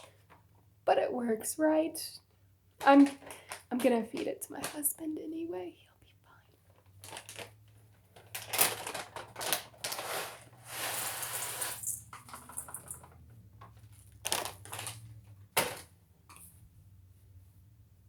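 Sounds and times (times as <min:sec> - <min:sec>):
rustling and rattling: 0:06.6 - 0:16.6.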